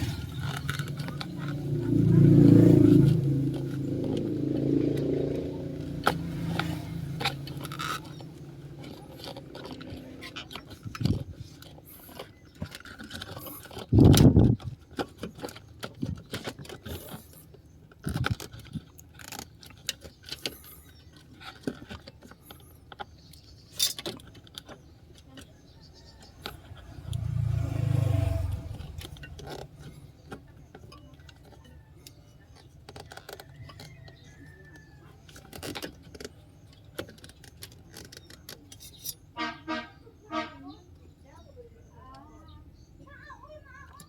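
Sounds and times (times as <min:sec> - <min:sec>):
keys and metal parts clinking: 0:23.6 - 0:25.4, 0:35.3 - 0:39.4.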